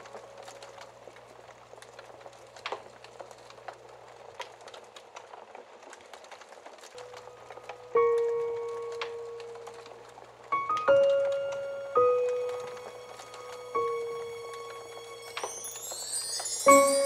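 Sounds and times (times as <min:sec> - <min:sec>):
soft piano note: 0:00.0 - 0:00.9, 0:07.0 - 0:17.0
wood fire crackling: 0:00.0 - 0:17.0.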